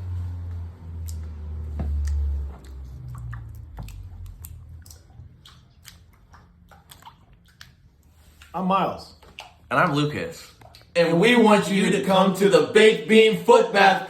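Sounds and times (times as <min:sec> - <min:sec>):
wet squelching: 0:00.8 - 0:11.0.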